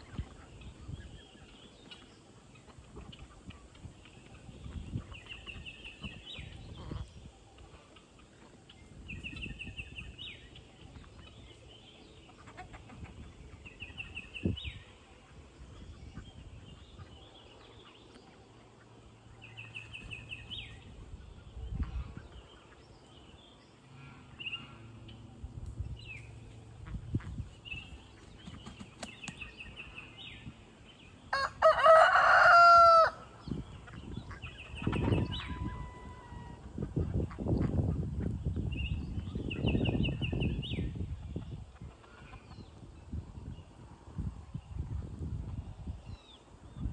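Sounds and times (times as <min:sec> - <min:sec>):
rooster crowing: 0:31.3 - 0:33.2.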